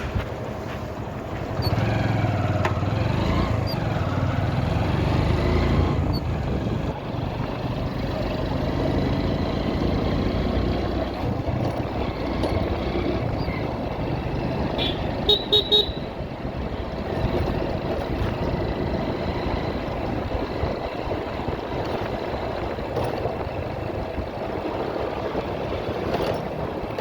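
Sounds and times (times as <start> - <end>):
motorcycle engine running: 0.0 - 27.0
road noise: 0.0 - 27.0
wind noise: 4.5 - 14.6, 15.9 - 27.0.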